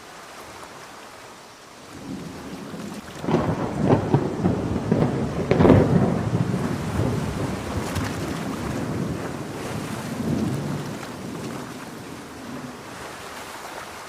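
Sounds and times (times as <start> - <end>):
steady rain: 0.0 - 14.0
thunder: 2.0 - 12.8.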